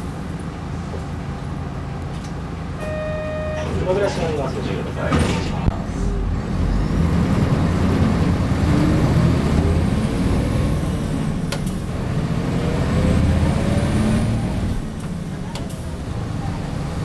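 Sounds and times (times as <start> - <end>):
bus diesel engine pulling away: 0.0 - 17.0.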